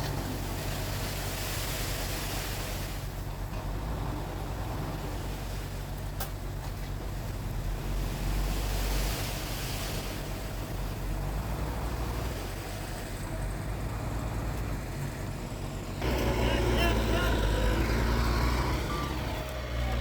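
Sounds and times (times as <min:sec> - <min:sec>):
diesel engine running: 0:10.2 - 0:20.0.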